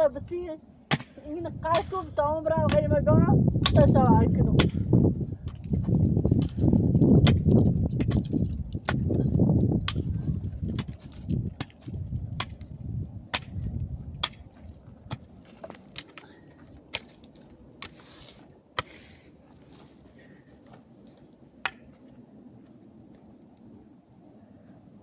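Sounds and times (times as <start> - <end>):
hand tool striking rock: 0.9 - 3.0, 3.6 - 12.7, 13.4 - 16.2, 16.9 - 18.0, 18.8 - 19.1, 21.7 - 21.9.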